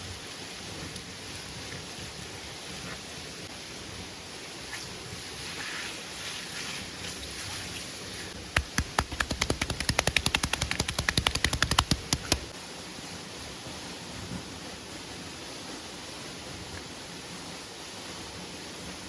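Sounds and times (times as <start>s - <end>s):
steady rain: 0.0s - 19.0s
rapid sharp knocks: 8.5s - 12.5s.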